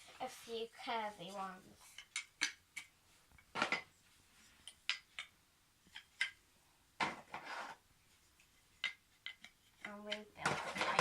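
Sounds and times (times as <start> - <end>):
wooden toy track pieces clacking: 1.9 - 2.9, 4.6 - 6.4, 8.7 - 11.0
wooden track sliding scrape: 7.3 - 7.8.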